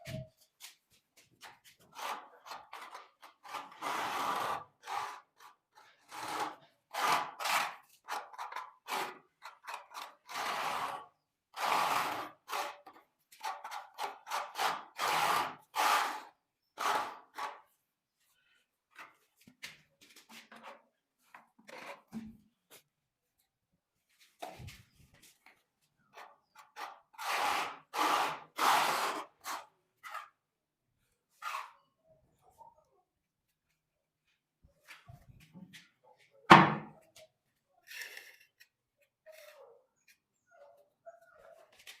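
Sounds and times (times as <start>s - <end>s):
trowel scraping adhesive: 1.4s - 17.8s, 26.1s - 30.4s, 31.3s - 31.9s.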